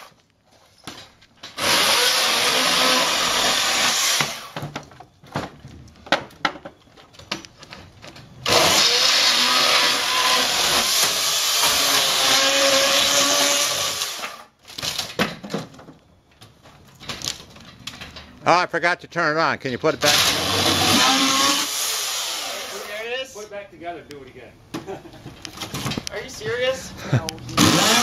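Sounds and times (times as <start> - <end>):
electric chainsaw cutting: 1.6 - 4.6, 8.4 - 14.4, 20.0 - 23.0, 27.6 - 28.0
knocks and cracks: 4.2 - 8.2, 14.6 - 18.3.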